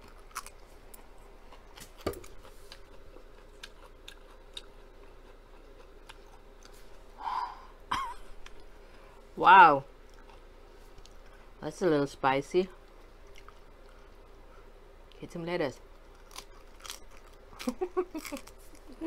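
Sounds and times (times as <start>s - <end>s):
breathy exhale: 7.2s - 7.8s.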